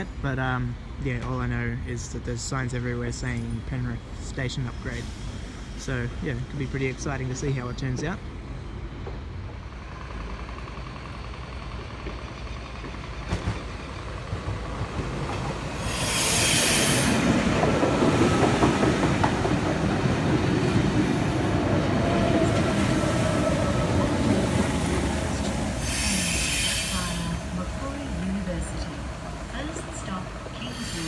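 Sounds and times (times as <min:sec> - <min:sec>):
electric train rumbling: 0:00.0 - 0:31.0
hissing air burst: 0:15.8 - 0:17.5, 0:25.0 - 0:27.6.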